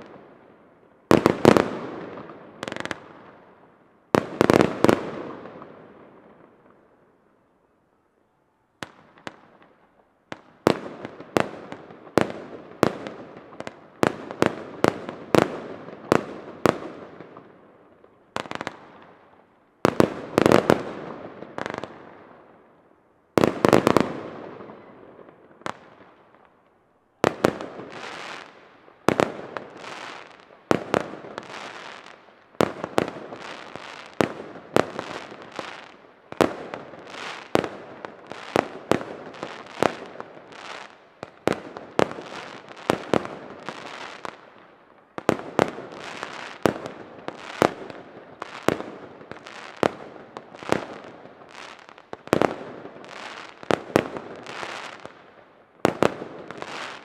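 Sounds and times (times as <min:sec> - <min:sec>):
firework bangs with hiss: 0:01.1 - 0:03.4, 0:04.1 - 0:06.4, 0:19.8 - 0:22.3, 0:23.4 - 0:26.4, 0:27.2 - 0:57.0.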